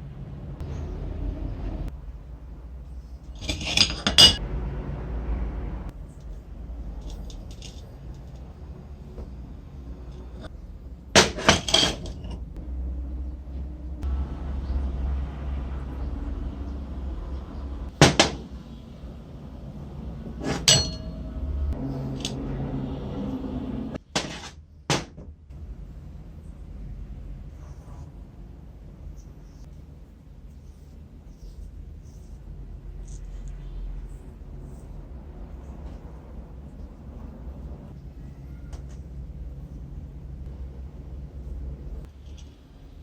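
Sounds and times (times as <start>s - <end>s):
low steady hum: 0.0s - 24.0s, 24.6s - 43.0s
metal parts clinking and clattering: 3.2s - 4.4s, 7.0s - 8.5s, 11.2s - 12.5s, 20.4s - 21.2s.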